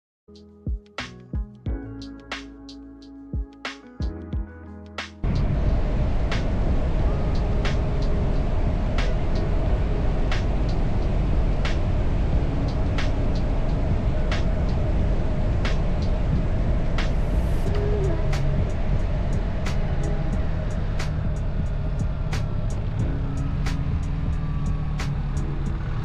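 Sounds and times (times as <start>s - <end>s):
wind rush on microphone: 5.2s - 26.0s
motorcycle engine running: 5.3s - 26.0s.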